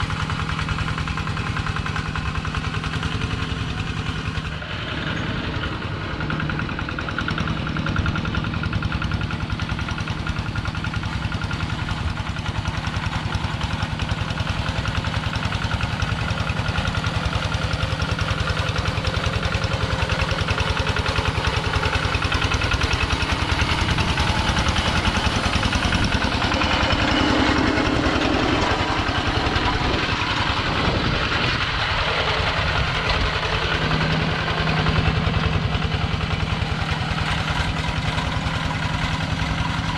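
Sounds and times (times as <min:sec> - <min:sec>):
diesel tractor engine chugging: 0:00.0 - 0:39.9.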